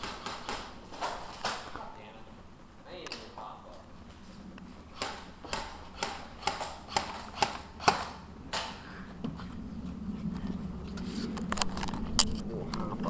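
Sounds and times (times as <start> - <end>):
airsoft rifle shots: 0.0 - 1.9, 4.9 - 8.8.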